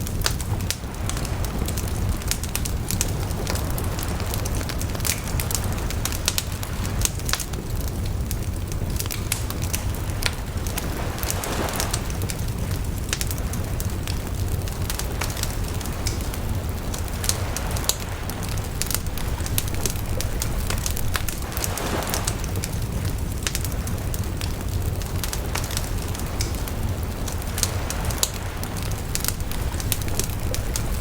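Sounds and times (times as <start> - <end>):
burning wood crackling and popping: 0.0 - 31.0
fire hissing: 0.0 - 31.0
low fire rumble: 0.0 - 31.0.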